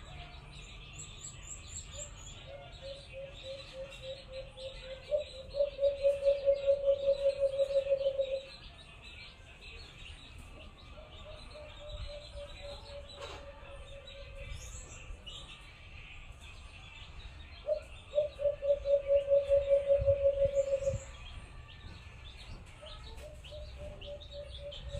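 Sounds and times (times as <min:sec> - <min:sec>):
small birds chirping: 0:00.0 - 0:24.9
dove cooing: 0:02.8 - 0:08.5, 0:17.7 - 0:21.1.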